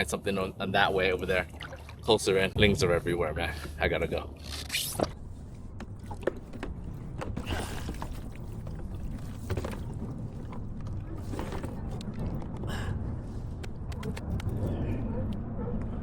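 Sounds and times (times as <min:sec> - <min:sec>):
fishing gear clicks and knocks: 0:05.7 - 0:12.7.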